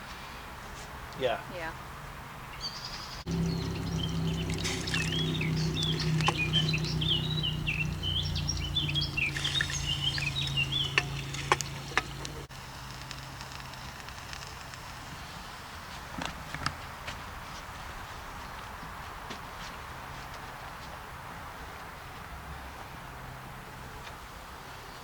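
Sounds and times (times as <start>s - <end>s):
outdoor background: 0.0s - 25.0s
songbird warbling: 2.5s - 12.5s
low steady hum: 3.3s - 14.0s
sharp clicks: 9.2s - 15.0s.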